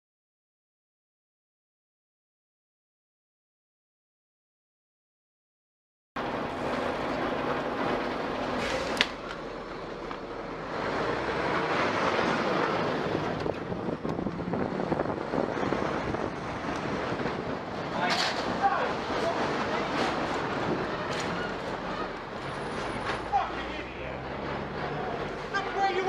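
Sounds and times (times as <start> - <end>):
rushing vehicle noise: 6.2 - 26.0.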